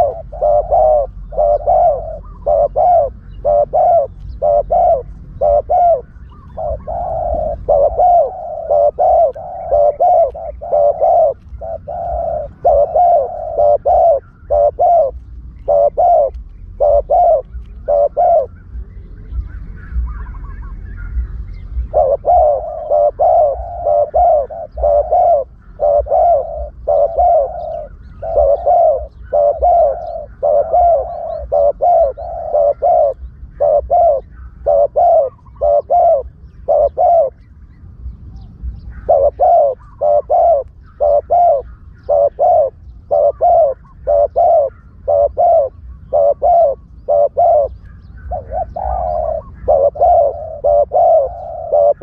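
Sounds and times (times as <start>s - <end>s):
low rumble: 0.0s - 34.7s
dove cooing: 0.0s - 52.0s.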